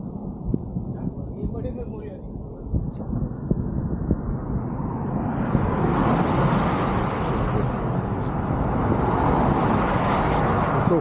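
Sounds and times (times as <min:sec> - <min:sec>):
vehicle passing by: 0:04.5 - 0:11.0.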